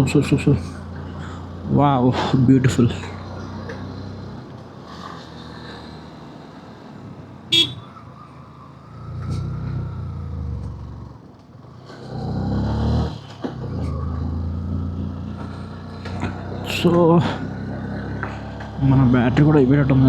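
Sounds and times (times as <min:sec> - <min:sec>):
vehicle engines running: 0:00.0 - 0:20.0
car horn toot: 0:07.5 - 0:08.0.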